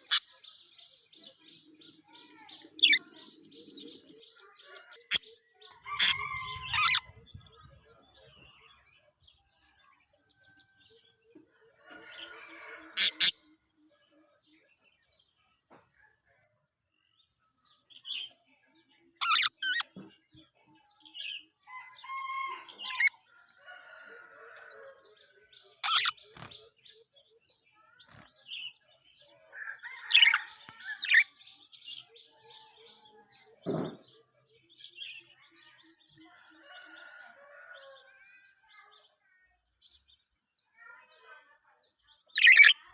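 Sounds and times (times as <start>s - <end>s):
budgerigars chirping: 5.9s - 7.2s, 13.0s - 13.3s, 19.2s - 19.9s, 25.8s - 26.5s.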